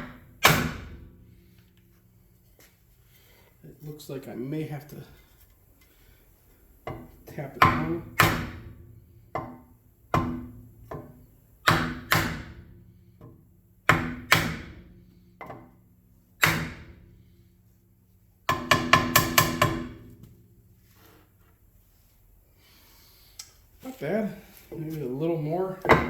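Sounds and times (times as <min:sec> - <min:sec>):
hammer striking metal rim: 0:18.5 - 0:20.0.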